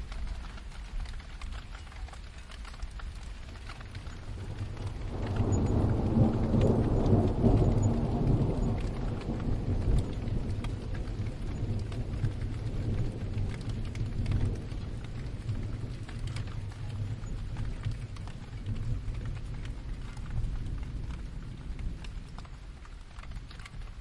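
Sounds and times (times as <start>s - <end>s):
scattered drips: 0.0s - 24.0s
steady rain: 0.0s - 24.0s
distant thunder roll: 3.8s - 22.4s.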